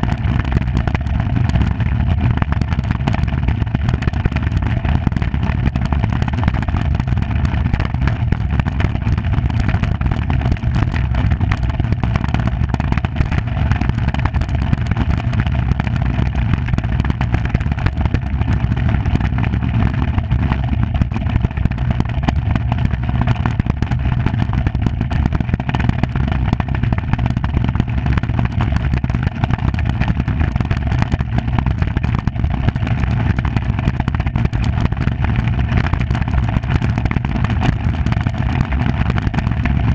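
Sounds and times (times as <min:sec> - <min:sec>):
iceboat runners grinding on ice: 0:00.0 - 0:39.9.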